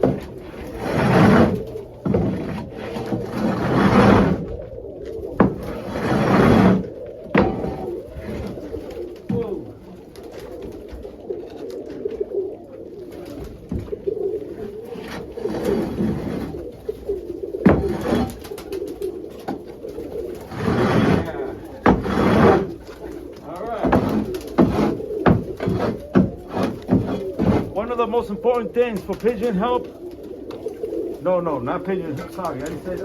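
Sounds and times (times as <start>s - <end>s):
scraping noises: 0.0s - 9.5s, 13.2s - 29.9s
pigeons cooing: 0.0s - 33.0s
sharp knocks: 6.5s - 7.9s, 17.6s - 18.4s, 21.8s - 22.7s, 23.8s - 27.8s.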